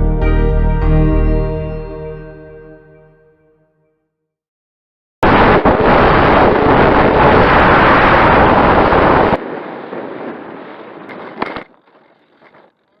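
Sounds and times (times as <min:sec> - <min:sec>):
faint wind noise: 0:05.2 - 0:12.7
wind buffeting microphone: 0:05.3 - 0:11.7.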